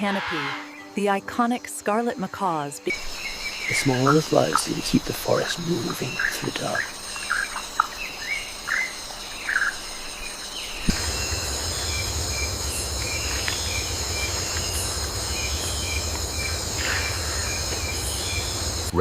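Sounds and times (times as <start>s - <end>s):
insects droning: 0.0s - 19.0s
falling bird chirps: 2.9s - 18.9s
low rumbling noise: 10.8s - 19.0s.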